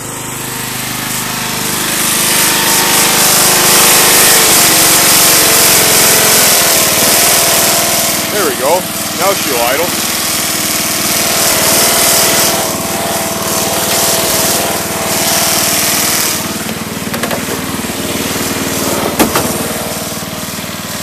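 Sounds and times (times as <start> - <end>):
small gasoline engine idling: 0.0 - 21.0.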